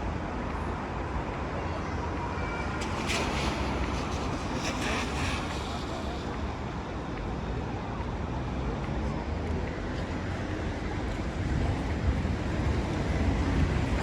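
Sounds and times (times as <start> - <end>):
traffic noise: 0.0 - 14.0
wind on microphone: 2.8 - 7.2, 10.9 - 14.0.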